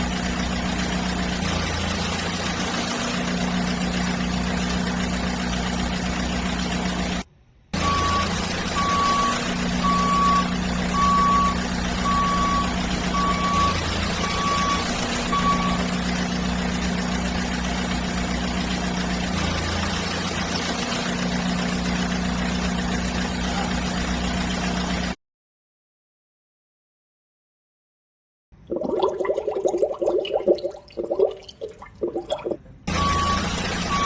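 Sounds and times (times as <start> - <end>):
reversing beeps: 7.8 - 16.0, 32.9 - 34.0
toy electronic engine drone: 7.8 - 25.2, 32.9 - 34.0.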